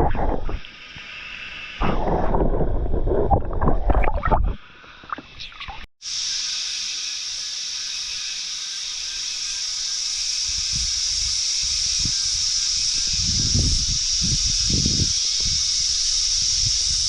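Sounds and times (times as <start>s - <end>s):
water splashing and sloshing: 0.0s - 1.2s, 1.8s - 5.9s
high-pitched cicada drone: 6.0s - 17.0s.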